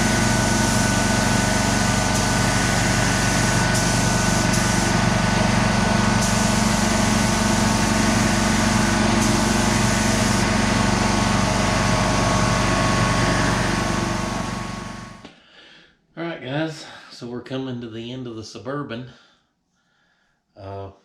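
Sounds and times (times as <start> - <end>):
machine motor humming: 0.0 - 15.2.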